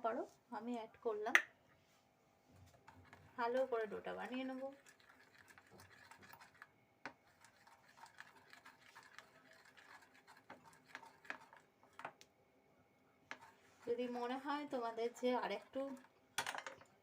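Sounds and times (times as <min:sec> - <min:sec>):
batter being mixed in a bowl: 0:02.4 - 0:12.2, 0:13.2 - 0:16.3.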